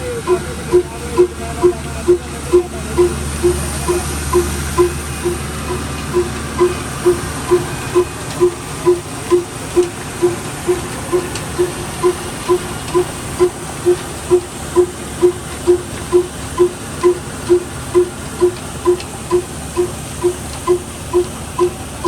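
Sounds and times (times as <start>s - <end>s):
diesel engine exhaust beat: 0.0s - 22.0s.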